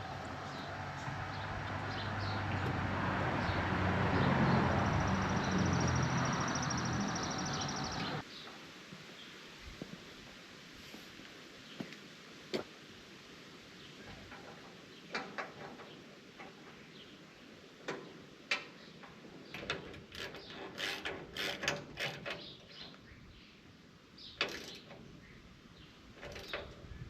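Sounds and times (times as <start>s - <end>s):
hand tool clicks and clanks on metal: 17.8s - 23.0s, 24.4s - 25.2s, 26.2s - 26.9s.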